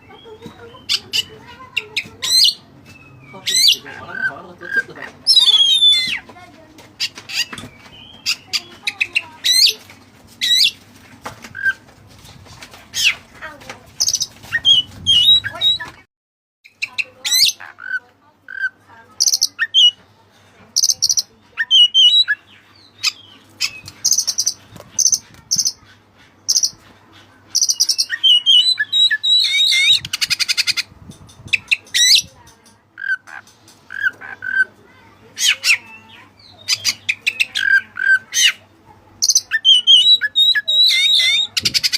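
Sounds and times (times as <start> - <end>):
bird singing whistles and chirps: 27.6 - 30.2
buzzy bird rattle: 30.0 - 34.3.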